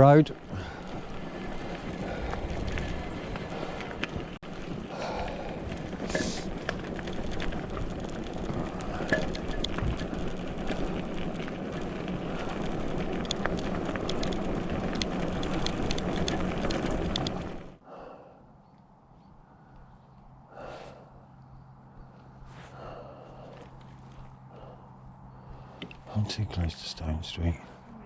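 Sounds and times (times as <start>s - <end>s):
bike rumbling over rough track: 0.0s - 17.8s.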